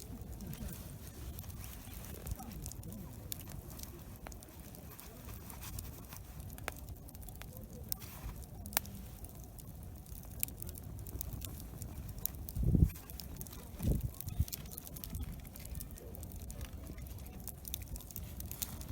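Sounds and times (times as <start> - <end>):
campfire crackling and popping: 0.0 - 18.9.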